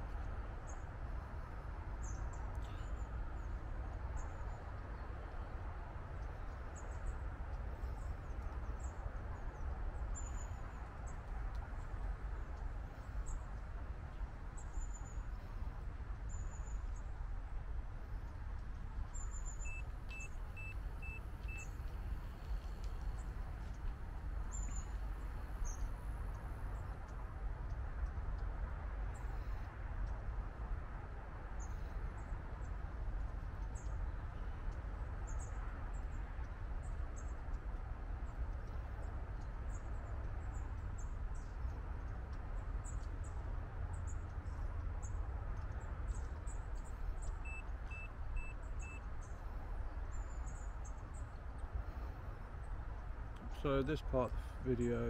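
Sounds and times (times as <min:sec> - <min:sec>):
low outdoor rumble: 0:00.0 - 0:55.0
small birds chirping: 0:18.3 - 0:28.1, 0:38.3 - 0:52.8
short beeps: 0:19.6 - 0:21.7, 0:47.5 - 0:49.0.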